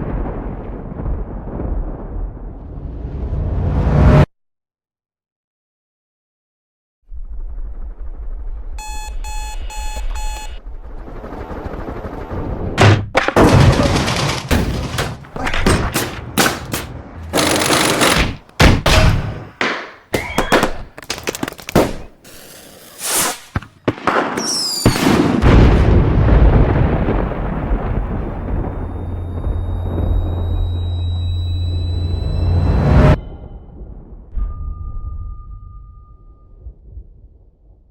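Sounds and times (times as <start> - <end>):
electronic alarm clock beeps: 8.8 - 10.6, 29.4 - 33.2
low rumble: 25.5 - 37.9.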